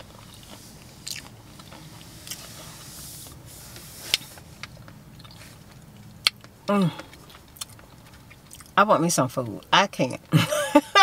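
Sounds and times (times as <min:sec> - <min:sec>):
chewing crunchy chip: 0:00.0 - 0:02.6, 0:04.1 - 0:08.8.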